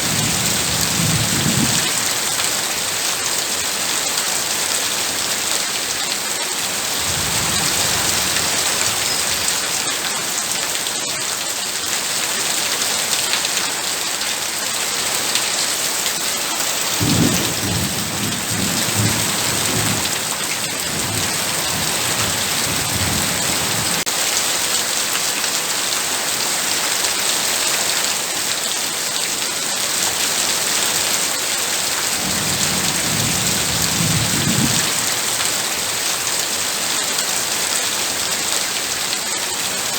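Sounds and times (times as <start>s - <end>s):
low thunder rumbling: 0.0s - 2.0s, 17.0s - 24.0s, 32.2s - 35.1s
heavy rain: 0.0s - 39.9s.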